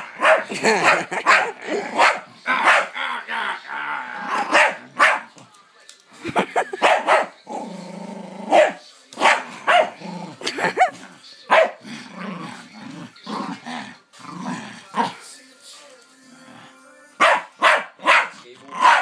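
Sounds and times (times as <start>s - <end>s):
dog barking: 0.0s - 2.9s, 4.4s - 5.3s, 6.8s - 7.3s, 8.5s - 10.0s, 11.5s - 11.8s, 17.2s - 19.0s
dog growling: 7.4s - 8.8s, 9.5s - 11.2s, 11.8s - 15.2s.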